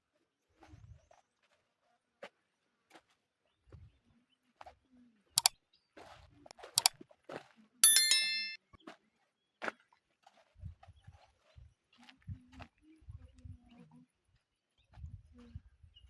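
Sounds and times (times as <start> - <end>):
metal object ringing: 7.8 - 8.6.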